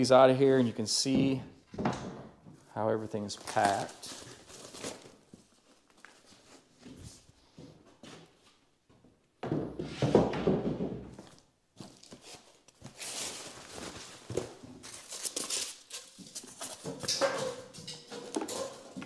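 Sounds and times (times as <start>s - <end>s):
cardboard and plastic rustling: 3.2s - 7.3s, 11.2s - 19.0s.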